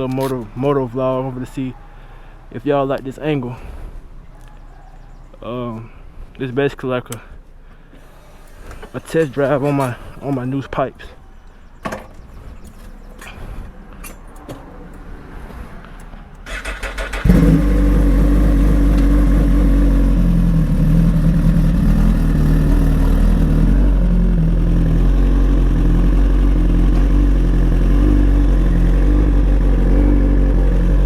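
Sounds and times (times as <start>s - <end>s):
motorcycle starter cranking: 16.4s - 19.2s.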